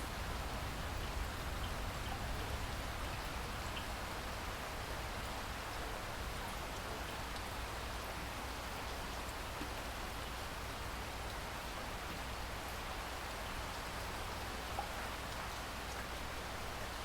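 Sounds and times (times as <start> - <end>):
steady rain falling: 0.0 - 17.0
faint rain drop ticks: 1.0 - 4.0.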